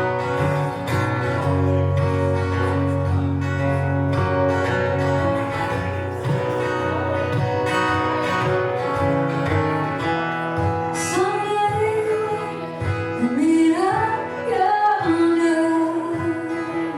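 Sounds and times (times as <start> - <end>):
low bass notes: 0.0 - 11.0
guitar playing: 0.0 - 16.9.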